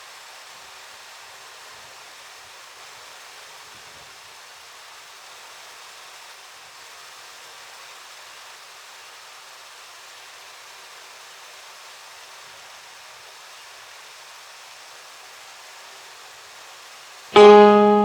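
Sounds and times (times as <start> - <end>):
plucked string instrument note: 17.4 - 18.0.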